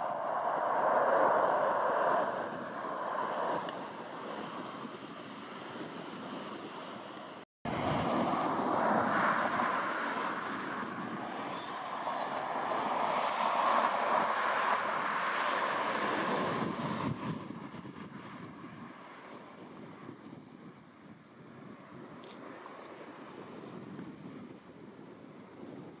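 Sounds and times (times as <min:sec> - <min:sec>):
jet engine rushing: 0:00.0 - 0:18.0
wind on microphone: 0:00.0 - 0:26.0.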